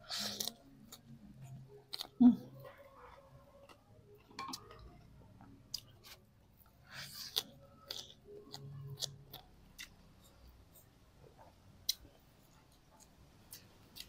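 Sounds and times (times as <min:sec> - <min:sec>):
person chewing with mouth smacks: 0:00.1 - 0:02.2, 0:06.9 - 0:14.0.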